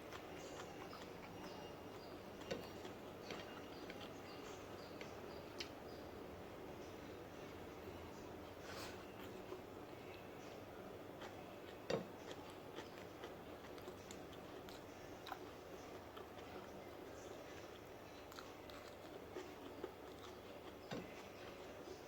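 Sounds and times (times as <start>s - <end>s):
person chewing: 0.0s - 5.9s, 8.5s - 22.0s.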